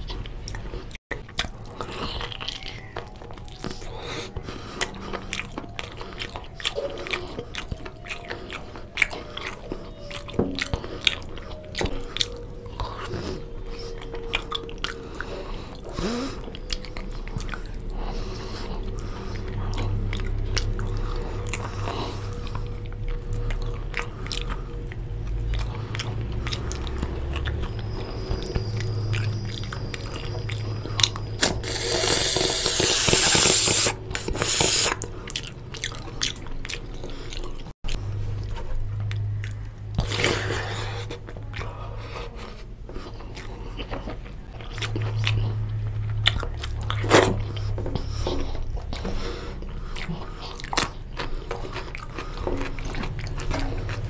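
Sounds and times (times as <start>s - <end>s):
chewing and biting food: 0.0s - 54.0s
noisy bursts: 31.3s - 35.0s.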